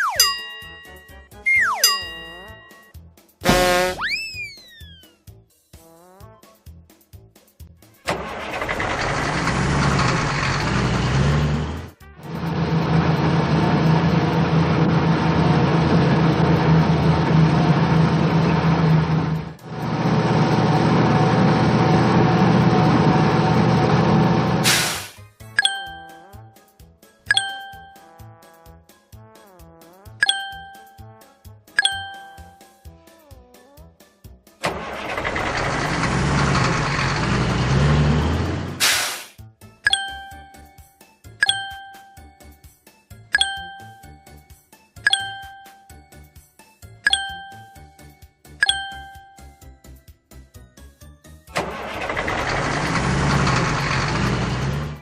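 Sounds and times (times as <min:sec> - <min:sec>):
chime notes: 0:00.0 - 0:02.9, 0:27.3 - 0:28.1, 0:30.2 - 0:31.0, 0:31.8 - 0:32.7, 0:41.4 - 0:42.3, 0:43.4 - 0:44.2, 0:45.1 - 0:46.0, 0:47.1 - 0:48.0, 0:48.6 - 0:49.6
background music: 0:00.0 - 0:09.2, 0:25.1 - 0:36.5, 0:39.4 - 0:53.1
truck engine humming: 0:08.1 - 0:26.2, 0:34.6 - 0:38.9, 0:51.6 - 0:55.0
short sharp hiss: 0:24.6 - 0:25.2, 0:38.8 - 0:39.4.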